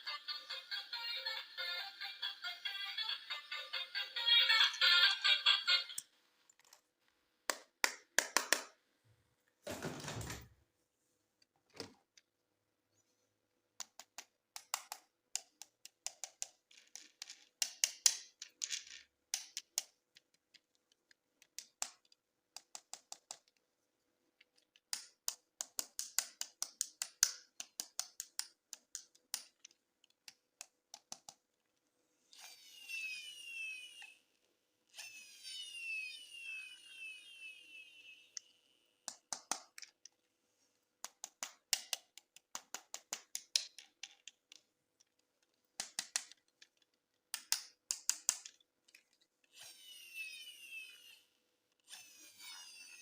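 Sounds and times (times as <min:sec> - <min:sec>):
plastic toy parts clicking: 0:13.8 - 0:23.6, 0:24.4 - 0:31.5, 0:38.4 - 0:40.3, 0:41.0 - 0:49.7.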